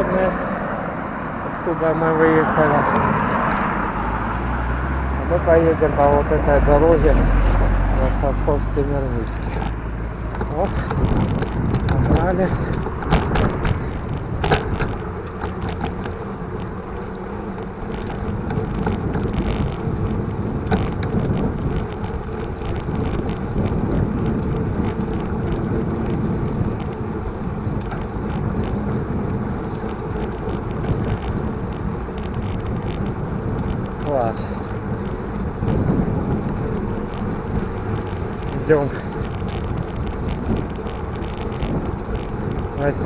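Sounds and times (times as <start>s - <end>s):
bicycle road and wind noise: 0.0s - 43.0s
sharp knocks from bumps: 9.3s - 16.7s.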